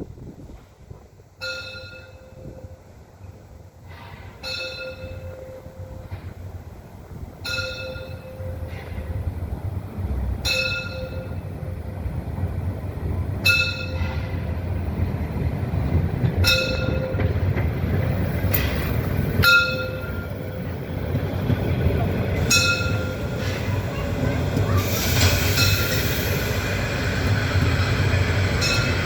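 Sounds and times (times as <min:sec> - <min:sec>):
steam train rumbling: 0:00.0 - 0:29.0
locomotive bell strikes: 0:01.4 - 0:02.8, 0:03.9 - 0:06.3, 0:07.4 - 0:09.2, 0:10.4 - 0:11.8, 0:13.4 - 0:14.6, 0:16.0 - 0:20.7, 0:21.4 - 0:26.8, 0:27.6 - 0:29.0.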